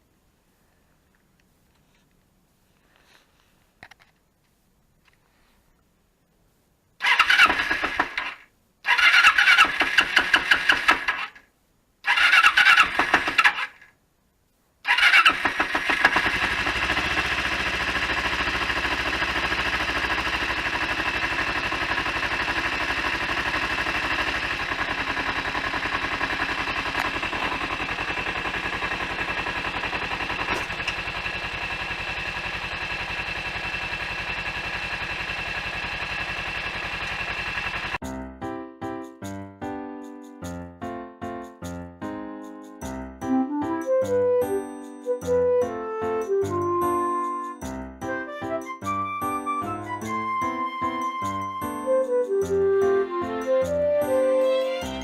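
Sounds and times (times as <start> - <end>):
motorcycle starter cranking: 7.0 - 11.4, 12.1 - 13.8, 14.9 - 38.0
motorcycle engine idling: 15.0 - 38.0.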